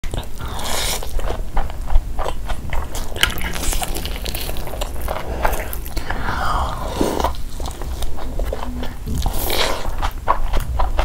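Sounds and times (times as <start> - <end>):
chewing and biting food: 0.0 - 11.0.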